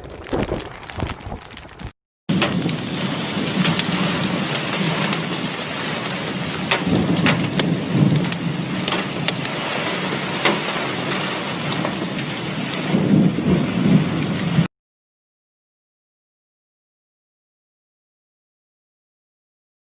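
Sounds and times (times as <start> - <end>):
heavy rain falling: 0.0 - 14.7
rain drops hitting close: 0.0 - 14.7.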